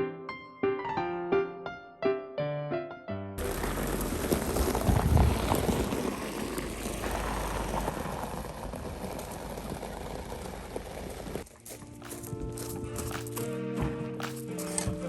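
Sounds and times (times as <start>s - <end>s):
car engine and tyres rumbling: 3.4s - 13.4s.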